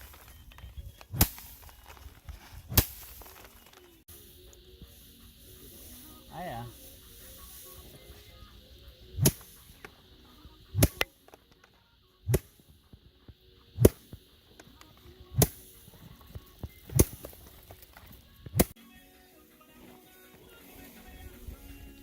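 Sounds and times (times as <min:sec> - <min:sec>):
rice bundles whacked: 0:00.0 - 0:04.0, 0:09.2 - 0:09.8, 0:15.3 - 0:16.0, 0:16.9 - 0:18.8.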